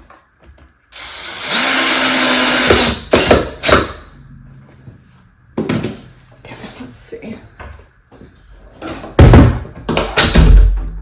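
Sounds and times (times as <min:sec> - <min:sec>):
cordless drill driving a screw: 0:01.0 - 0:03.7.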